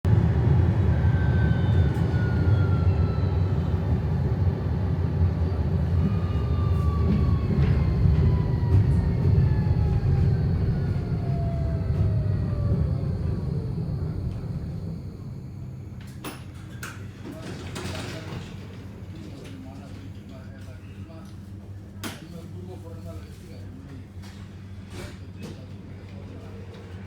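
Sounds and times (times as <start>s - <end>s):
train rumbling: 0.1s - 19.3s
faint falling whine: 5.9s - 16.8s.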